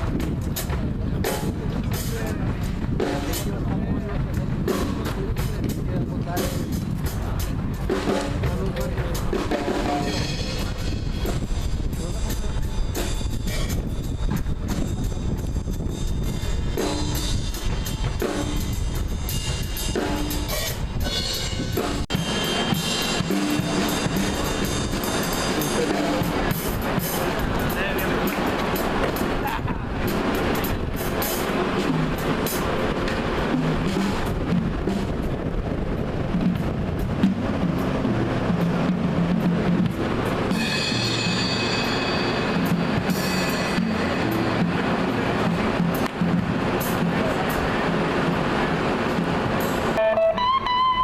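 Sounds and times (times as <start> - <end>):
drum kit hits: 0.0 - 48.5
rock band playing: 0.0 - 51.0
high held tone: 49.9 - 51.0.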